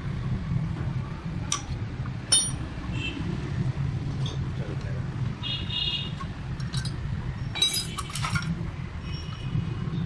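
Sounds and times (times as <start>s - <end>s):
metal pieces clinking: 2.3s - 2.6s, 6.6s - 8.5s.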